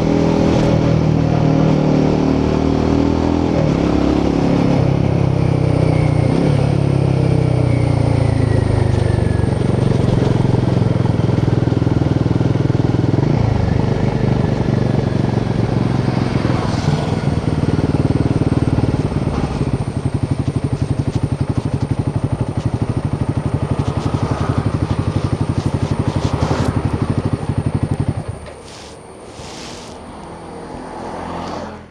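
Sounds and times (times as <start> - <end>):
motorcycle engine thumping: 17.2 - 28.8.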